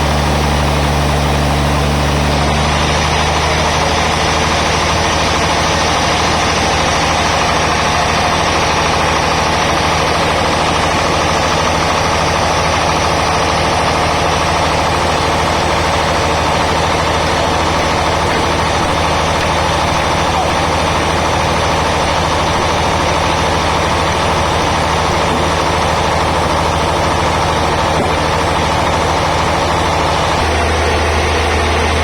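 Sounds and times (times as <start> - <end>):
band saw running: 0.0 - 32.0.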